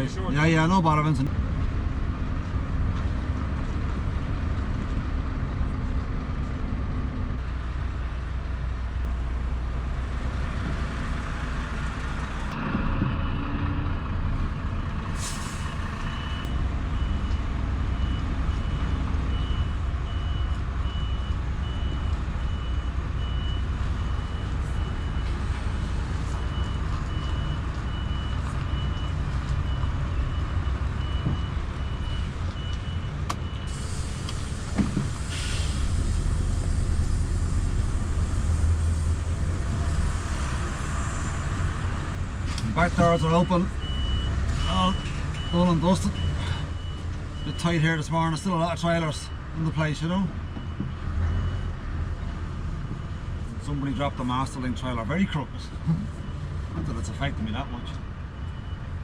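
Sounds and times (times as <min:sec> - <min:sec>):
truck engine running: 0:00.0 - 0:53.6
air brake hiss: 0:15.2 - 0:15.8, 0:33.7 - 0:41.5
reversing alarm beeping: 0:15.3 - 0:17.4, 0:18.0 - 0:25.6, 0:26.3 - 0:37.0, 0:42.8 - 0:51.8, 0:56.2 - 0:58.9.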